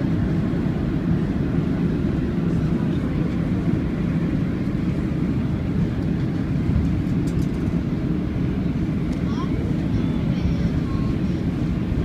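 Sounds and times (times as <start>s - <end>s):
airliner engine rumble: 0.0s - 12.0s.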